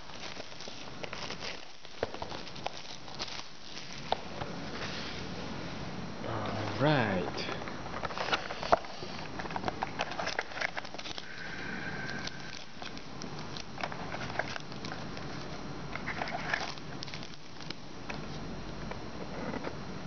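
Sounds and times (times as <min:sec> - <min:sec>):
packaging crinkling: 0:00.0 - 0:05.2, 0:08.0 - 0:18.4.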